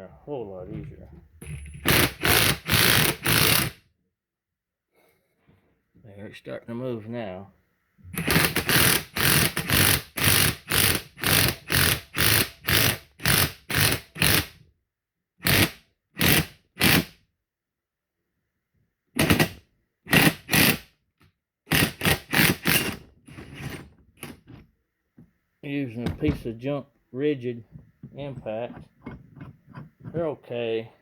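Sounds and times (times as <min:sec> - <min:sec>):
impact wrench hammering in bursts: 0:01.8 - 0:03.8, 0:08.2 - 0:14.6, 0:15.4 - 0:17.2, 0:19.2 - 0:20.9, 0:21.7 - 0:24.4.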